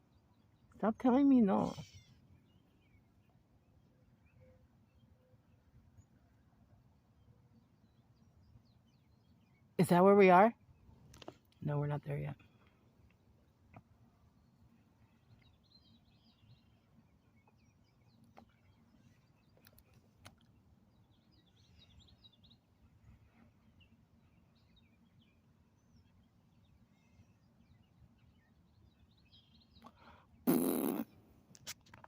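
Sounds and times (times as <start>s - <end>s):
faint bird chirps: 0.0s - 6.5s
low steady background hum: 0.0s - 32.0s.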